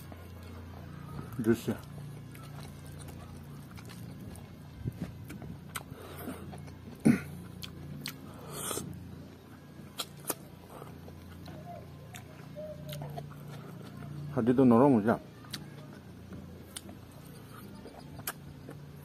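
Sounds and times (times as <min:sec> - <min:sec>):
person chewing: 0:00.0 - 0:14.3, 0:15.4 - 0:19.0
steady low hum: 0:00.0 - 0:19.0
wet mouth clicks and lip smacks: 0:18.2 - 0:18.5.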